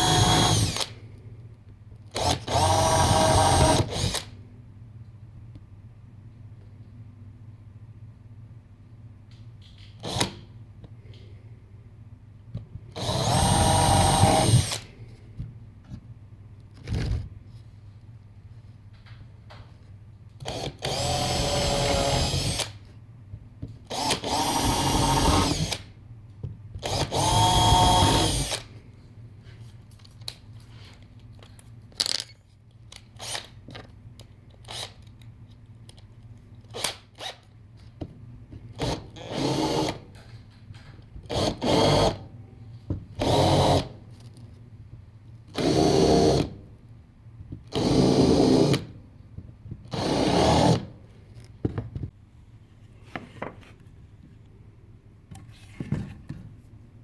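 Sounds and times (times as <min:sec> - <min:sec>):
electric drill running: 0:00.0 - 0:00.9, 0:02.2 - 0:04.2, 0:13.0 - 0:14.8, 0:20.5 - 0:22.7, 0:23.9 - 0:25.8, 0:26.9 - 0:28.6.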